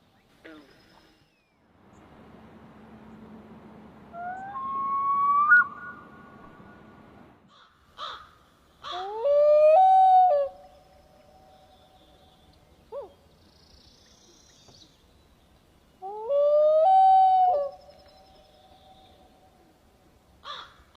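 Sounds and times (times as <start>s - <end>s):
bird calling: 4.1s - 6.7s.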